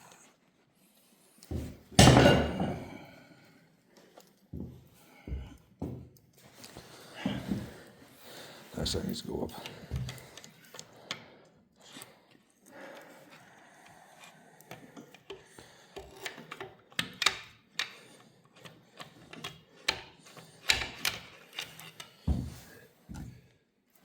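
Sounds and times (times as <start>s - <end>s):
metallic clicks of hand tools: 20.6s - 22.1s.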